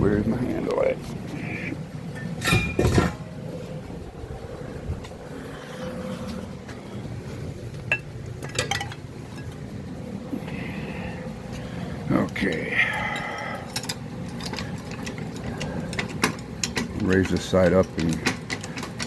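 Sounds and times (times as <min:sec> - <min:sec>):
metal jack clanking: 0:02.2 - 0:03.2, 0:12.4 - 0:19.0.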